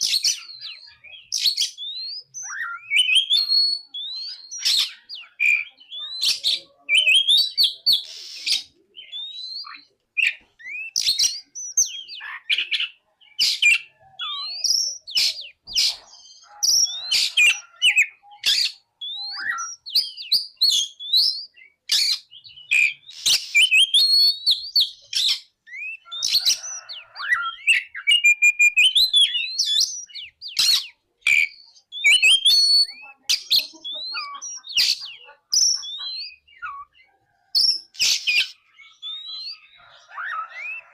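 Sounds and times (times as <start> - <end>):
bird singing whistled notes: 0.0 - 40.9.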